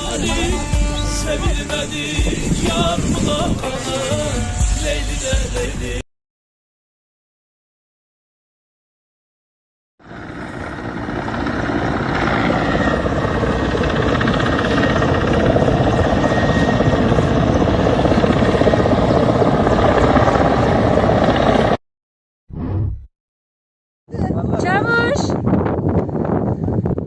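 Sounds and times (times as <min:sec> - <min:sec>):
helicopter rotor and engine: 0:00.0 - 0:04.6, 0:10.0 - 0:21.8.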